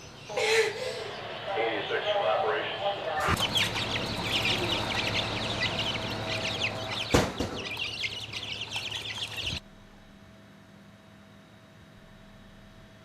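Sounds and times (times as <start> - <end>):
chicks peeping: 3.0 - 9.6
sharp knock: 7.1 - 7.7.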